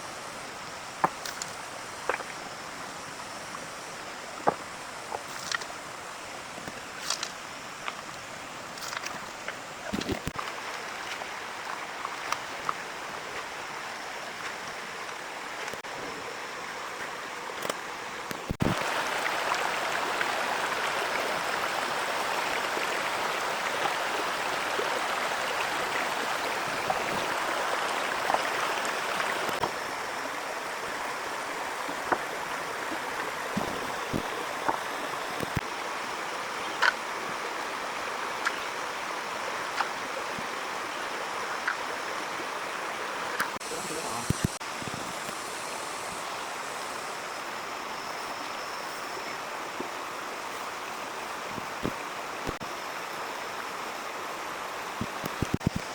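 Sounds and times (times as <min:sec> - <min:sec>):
heavy rain: 0:18.5 - 0:29.7.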